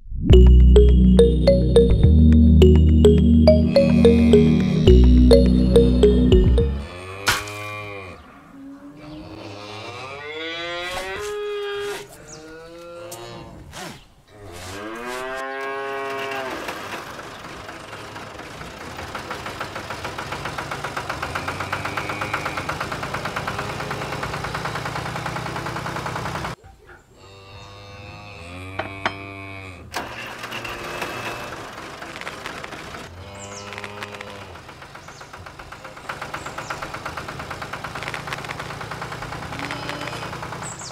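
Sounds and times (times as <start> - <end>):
tractor engine chugging: 34.6 - 39.6.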